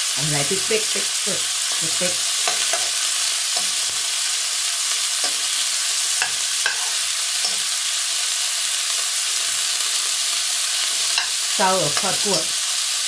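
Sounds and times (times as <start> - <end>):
pork and garlic sizzling in a wok: 0.0 - 13.0
spatula scraping and tapping pan: 2.4 - 4.0, 5.2 - 7.7.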